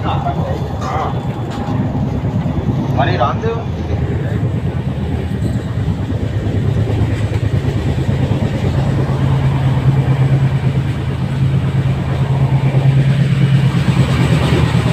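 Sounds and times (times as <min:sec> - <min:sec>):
train carriage running hum: 0:00.0 - 0:14.9.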